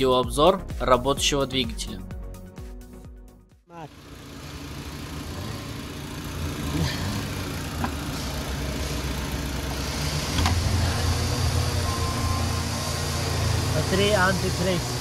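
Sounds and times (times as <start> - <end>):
car engine idling: 3.7 - 15.0.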